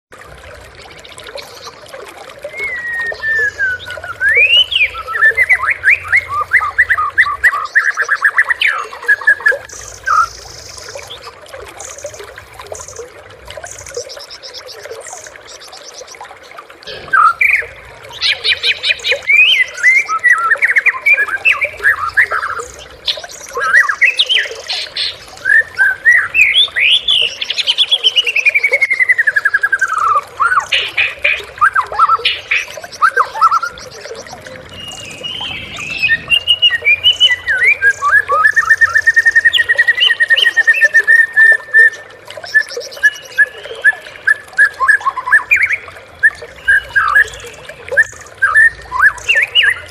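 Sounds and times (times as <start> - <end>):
songbird singing whistles: 2.5 - 8.4, 19.3 - 22.7, 31.7 - 49.8.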